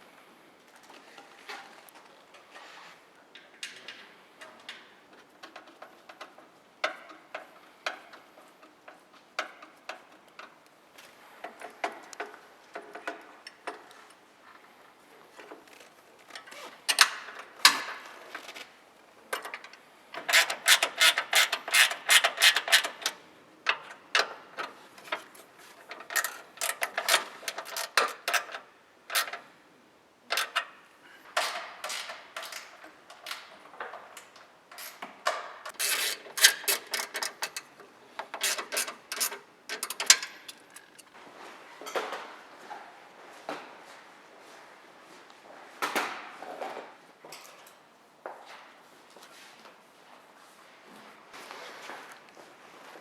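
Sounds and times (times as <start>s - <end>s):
hand tools clicking and ratcheting: 19.4s - 29.4s, 35.7s - 41.1s.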